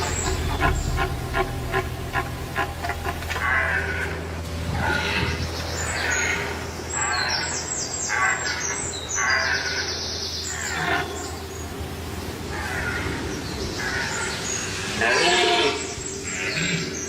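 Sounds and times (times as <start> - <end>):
deer stags roaring: 0.0 - 7.5
birds chirping: 0.0 - 17.0.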